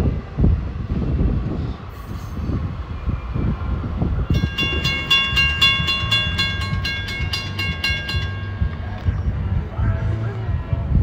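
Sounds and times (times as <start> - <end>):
train rumbling and clattering: 0.0 - 11.0
bell ringing rapidly: 4.3 - 9.0.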